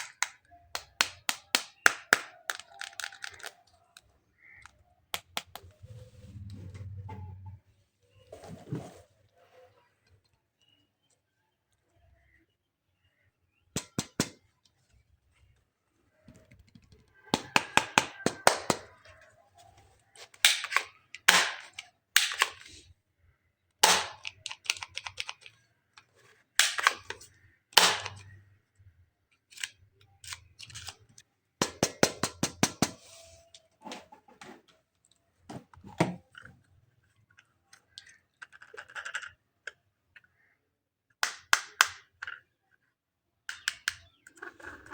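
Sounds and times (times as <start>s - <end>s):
plastic toy parts clicking: 0.0s - 5.7s, 20.2s - 22.9s, 23.8s - 28.4s, 29.3s - 33.0s, 37.4s - 40.4s, 41.2s - 42.6s, 43.5s - 44.9s.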